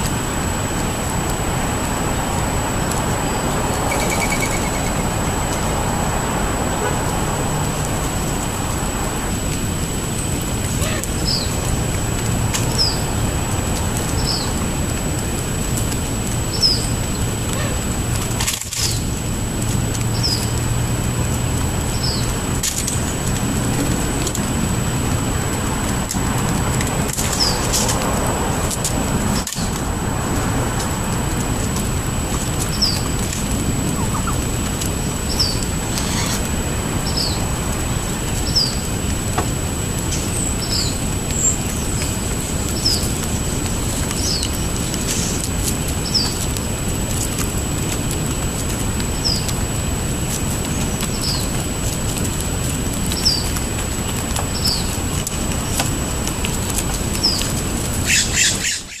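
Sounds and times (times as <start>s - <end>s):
low background rumble: 0.0s - 58.9s
bird chirping: 3.2s - 5.6s, 35.3s - 36.4s, 58.0s - 59.0s.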